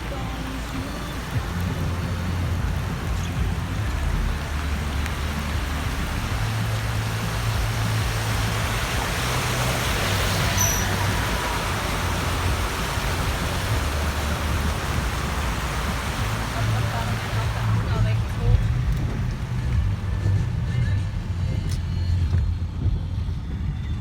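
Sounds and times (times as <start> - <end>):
running water: 0.0 - 22.9
heavy downpour: 0.0 - 24.0
low rumble: 0.0 - 24.0
high squeak: 10.4 - 11.2.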